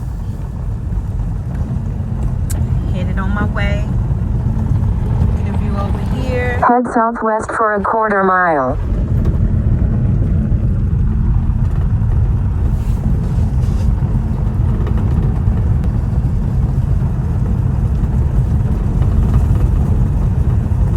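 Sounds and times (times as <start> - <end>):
car driving on gravel: 0.0 - 6.6, 8.8 - 20.9.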